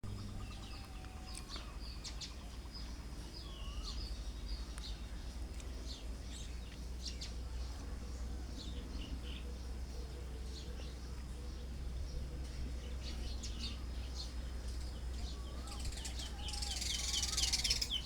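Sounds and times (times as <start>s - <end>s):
low steady hum: 0.0s - 18.0s
birds chirping and whistling: 0.1s - 5.0s, 11.6s - 18.0s.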